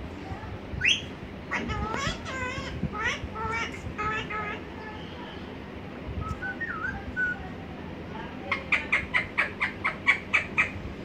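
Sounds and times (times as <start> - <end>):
parrot calling: 0.8 - 4.6, 8.5 - 10.8.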